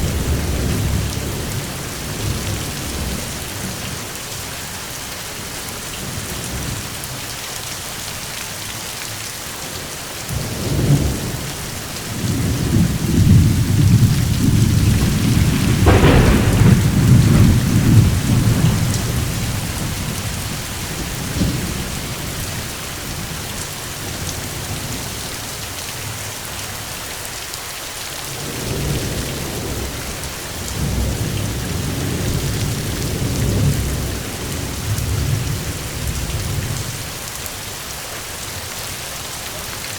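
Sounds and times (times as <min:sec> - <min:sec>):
steady rain: 0:00.0 - 0:39.9
thunder rumbling and cracking: 0:10.4 - 0:23.4.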